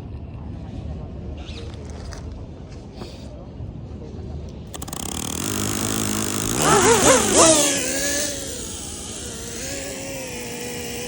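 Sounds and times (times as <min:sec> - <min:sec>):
drone motors whining: 0:04.7 - 0:11.0.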